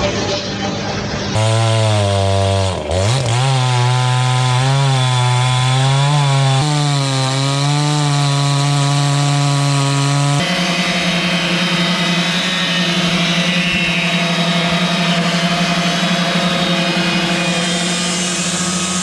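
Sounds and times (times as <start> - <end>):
chainsaw cutting wood: 1.3 - 19.0
steady machine noise: 10.4 - 19.0.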